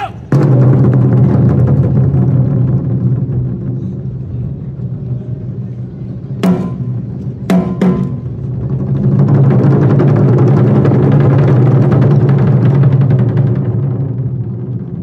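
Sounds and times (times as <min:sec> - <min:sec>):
fast dense drumming: 0:00.0 - 0:03.6, 0:06.4 - 0:15.0
low drums rumbling: 0:00.0 - 0:15.0
sharp ringing drum strikes: 0:06.4 - 0:08.3.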